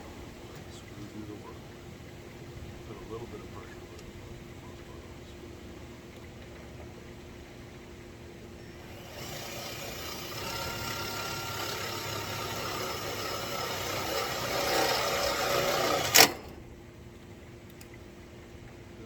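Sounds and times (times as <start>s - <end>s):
cordless drill motor whine: 8.6s - 16.6s.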